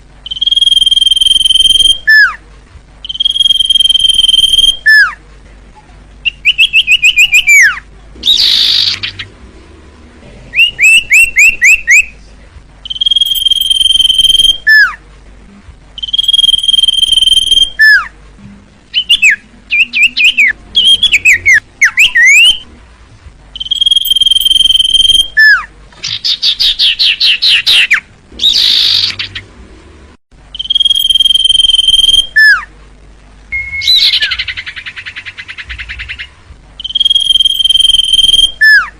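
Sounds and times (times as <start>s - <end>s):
bird whistling and chirping: 0.2s - 2.4s, 3.0s - 5.2s, 6.2s - 9.3s, 10.5s - 12.1s, 12.8s - 15.0s, 16.0s - 18.1s, 18.9s - 22.7s, 23.6s - 29.4s, 30.5s - 32.7s, 33.5s - 38.9s.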